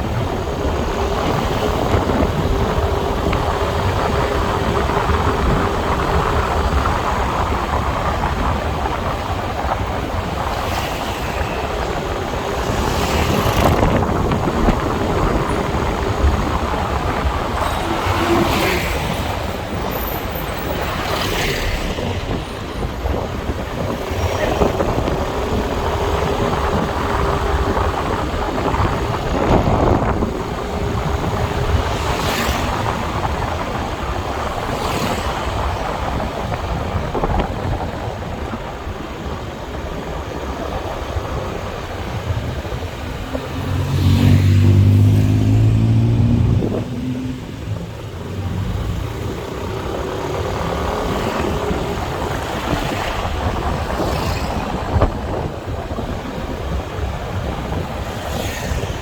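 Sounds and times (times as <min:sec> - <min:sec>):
road and wind noise: 0:00.0 - 0:59.0.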